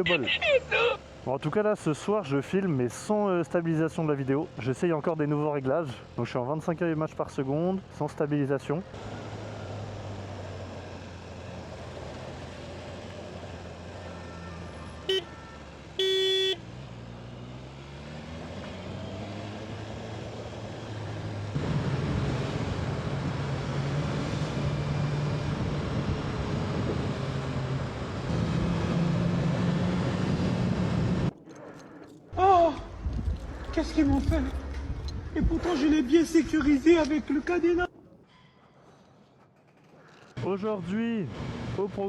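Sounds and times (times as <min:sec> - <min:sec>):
vehicle horn beeping: 0:15.0 - 0:16.7.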